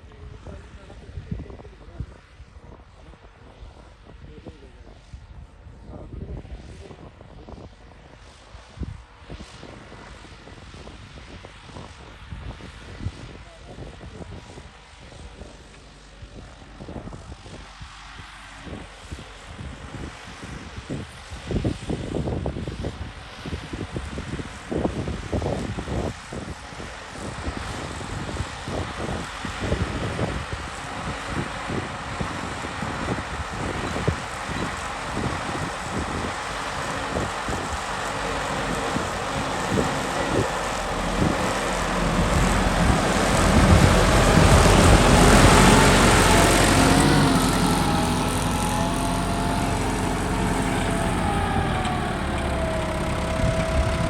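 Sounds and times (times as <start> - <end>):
wind buffeting microphone: 27.3 - 54.0
tractor engine running: 30.8 - 54.0.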